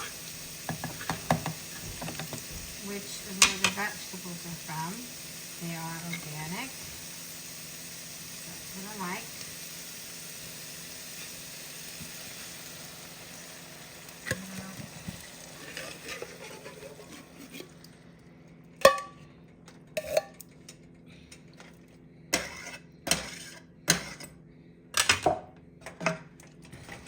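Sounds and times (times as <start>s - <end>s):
food sizzling in a pot: 0.0s - 17.8s
utensil clanking against metal pot: 0.7s - 2.5s, 18.8s - 19.2s, 20.0s - 20.4s.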